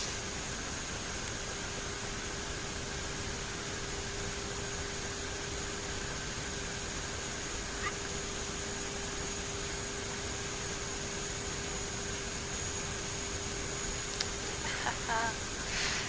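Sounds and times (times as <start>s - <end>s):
high engine whine: 0.0s - 15.8s
faint click: 14.1s - 14.4s.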